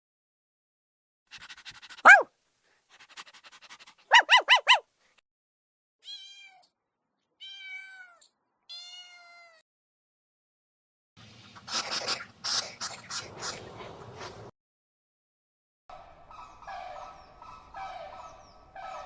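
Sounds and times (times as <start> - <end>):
cat meowing: 2.1 - 2.3, 6.0 - 6.7, 7.4 - 9.6.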